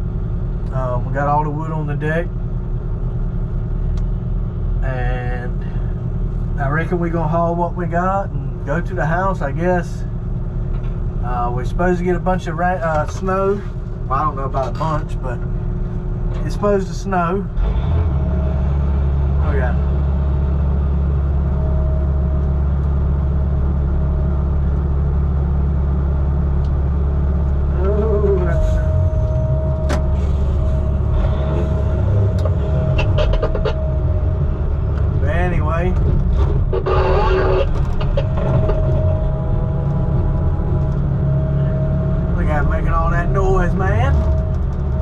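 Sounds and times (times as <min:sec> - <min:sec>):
heavy diesel engine running: 0:00.0 - 0:45.0
steady tone: 0:15.4 - 0:45.0.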